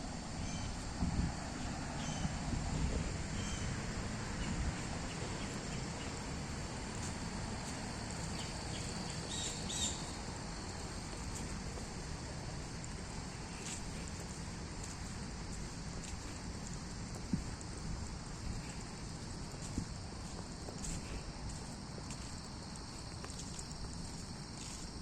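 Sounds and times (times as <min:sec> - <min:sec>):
wind rumble: 0:00.0 - 0:23.0
high insect hum: 0:00.0 - 0:25.0
bird chirps: 0:09.2 - 0:10.1.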